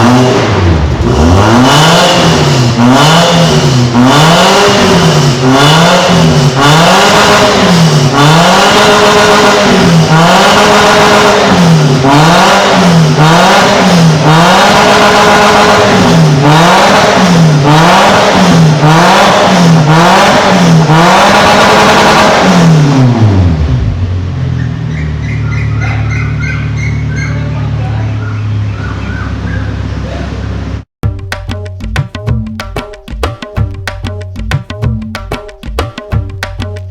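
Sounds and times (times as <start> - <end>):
car engine revving through exhaust: 0.0 - 25.2.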